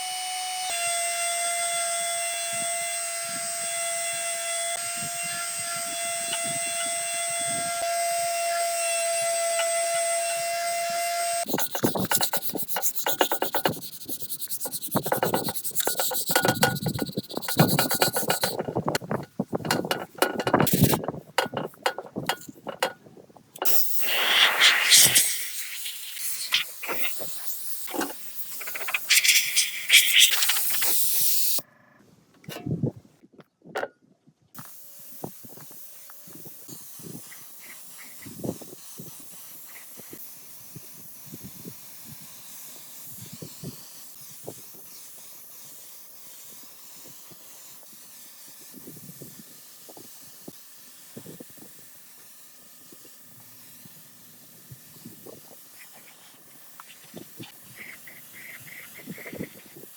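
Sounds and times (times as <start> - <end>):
loud spraying hiss: 23.6 - 31.6.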